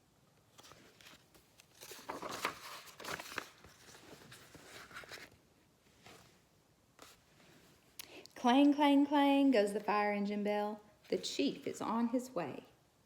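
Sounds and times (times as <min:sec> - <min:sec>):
book pages turning: 0:00.5 - 0:05.4, 0:07.0 - 0:07.2.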